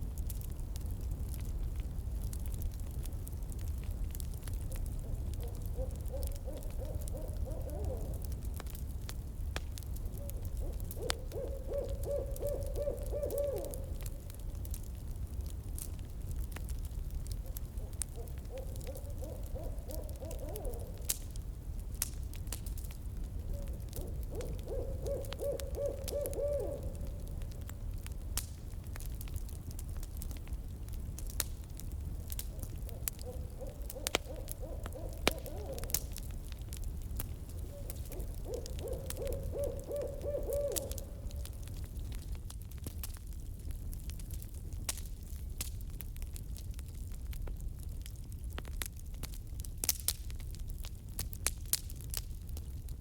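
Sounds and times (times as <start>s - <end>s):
campfire crackling and popping: 0.0s - 53.0s
owl hooting: 4.7s - 8.3s, 10.1s - 14.2s, 17.4s - 21.1s, 23.5s - 27.6s, 32.5s - 36.2s, 37.6s - 41.6s.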